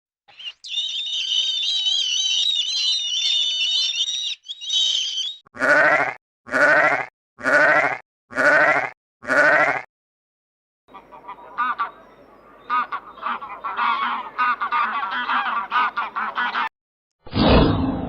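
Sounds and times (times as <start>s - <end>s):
high-pitched bird chirping: 0.3s - 5.5s
sheep bleating: 5.6s - 9.9s.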